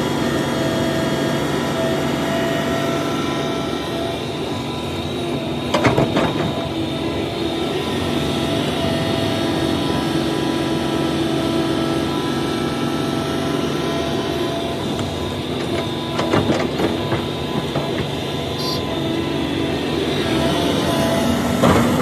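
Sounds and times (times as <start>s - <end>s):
excavator diesel engine running: 0.0s - 22.0s
knocks and clatter: 4.6s - 7.3s, 13.9s - 19.2s.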